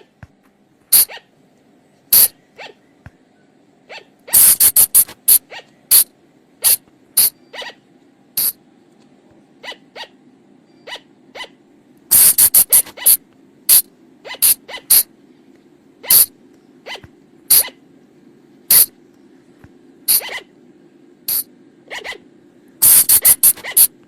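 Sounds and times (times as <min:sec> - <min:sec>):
faint steady hum: 0:00.0 - 0:24.0
shrill animal yelps: 0:00.9 - 0:01.3, 0:02.2 - 0:02.8, 0:03.8 - 0:06.0, 0:06.6 - 0:07.9, 0:09.6 - 0:10.2, 0:10.8 - 0:11.6, 0:12.2 - 0:15.1, 0:16.0 - 0:17.8, 0:20.1 - 0:20.6, 0:21.3 - 0:24.0.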